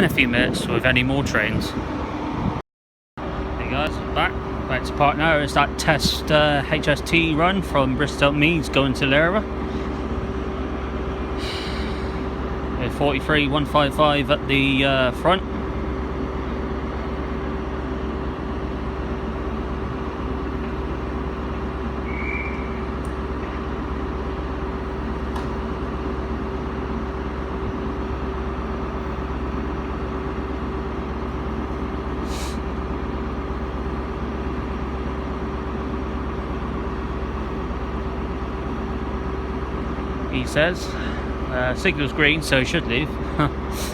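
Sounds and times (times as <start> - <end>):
diesel engine idling: 0.0 - 2.6, 3.2 - 43.9
short high chirp: 22.1 - 22.8.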